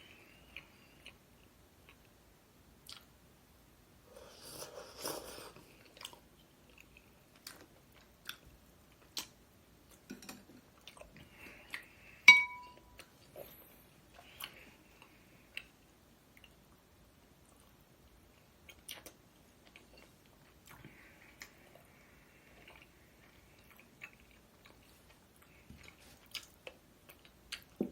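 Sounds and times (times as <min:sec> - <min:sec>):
utensil clinking on dish: 0:12.3 - 0:12.8
chewing with crunches: 0:17.5 - 0:27.9.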